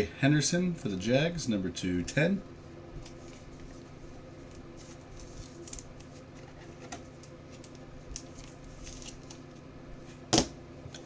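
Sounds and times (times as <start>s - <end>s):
steady low hum: 0.0s - 11.0s
cards rustling softly: 3.0s - 9.6s.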